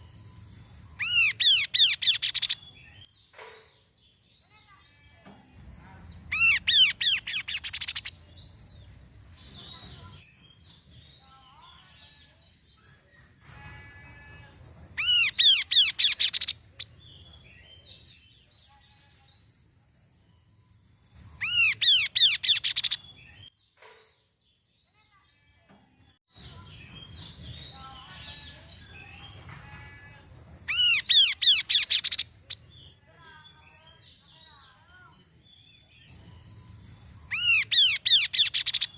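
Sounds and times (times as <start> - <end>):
bird whistling song: 0.0 - 3.1, 6.2 - 8.8, 15.0 - 18.8, 21.2 - 23.5, 30.7 - 33.0, 35.6 - 38.9
soft bird chirps: 0.0 - 14.3, 15.0 - 38.9.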